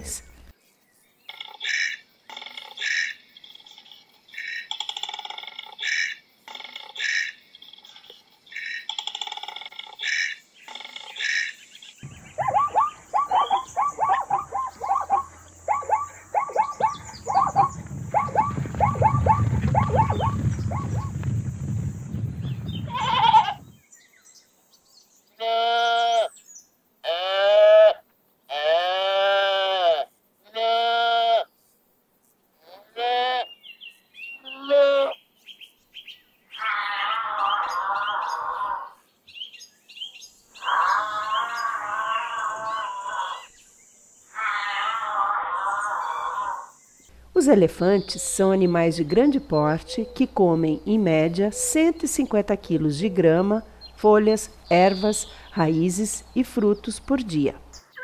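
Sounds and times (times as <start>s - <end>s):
koala bellowing: 12.0s - 21.1s, 36.5s - 39.0s, 40.6s - 43.5s, 44.3s - 46.7s
sheep bleating: 22.8s - 23.6s, 25.4s - 26.3s, 27.0s - 31.5s, 34.4s - 35.2s, 36.6s - 38.9s, 44.4s - 45.2s.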